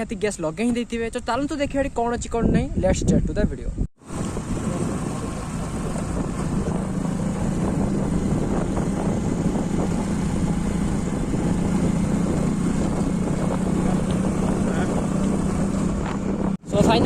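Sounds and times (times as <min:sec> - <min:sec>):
wind noise on microphone: 0:01.1 - 0:17.0
motorcycle engine running: 0:04.0 - 0:17.0.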